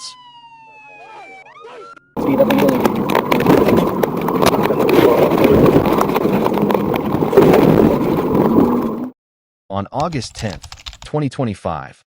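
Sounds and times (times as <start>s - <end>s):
crackling clicks: 2.2s - 9.1s
rough vehicle noise: 2.2s - 9.1s.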